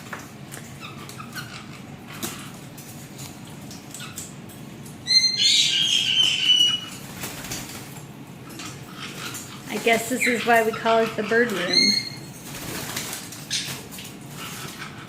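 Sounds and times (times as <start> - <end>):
parrot screeching: 0.8 - 2.5, 5.0 - 7.0, 8.6 - 12.4.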